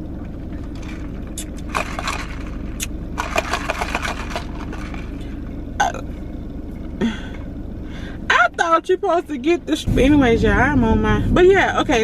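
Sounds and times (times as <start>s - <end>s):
car cabin hum: 0.0s - 12.0s
plastic drink cup crackling: 0.8s - 5.2s.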